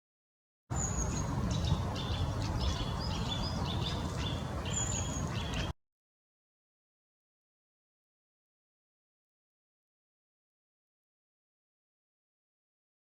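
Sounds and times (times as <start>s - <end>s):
low outdoor rumble: 0.7s - 5.7s
small birds chirping: 0.7s - 5.8s
thin bird whistles: 0.8s - 4.0s.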